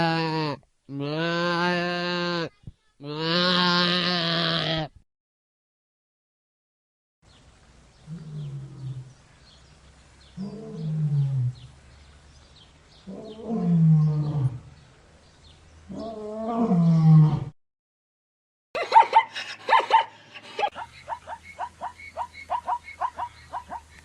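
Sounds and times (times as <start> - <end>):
deep animal calls: 10.4 - 11.7, 15.9 - 17.6, 20.6 - 24.0.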